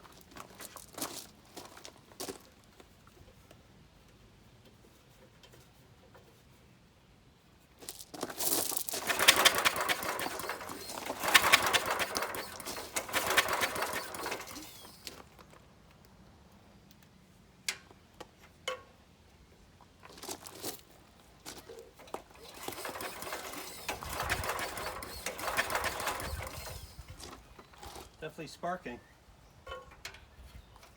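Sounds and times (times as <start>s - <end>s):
short rattle: 8.1s - 15.6s, 21.7s - 28.2s
engine cranked by pull cord: 8.4s - 15.6s, 21.6s - 28.2s.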